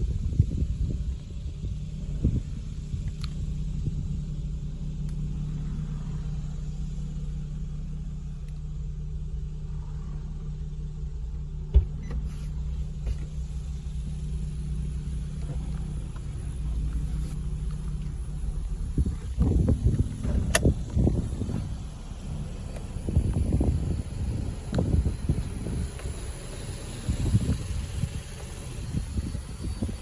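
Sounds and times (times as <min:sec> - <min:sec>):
car engine idling: 0:00.0 - 0:30.0
sharp click: 0:19.9 - 0:20.8.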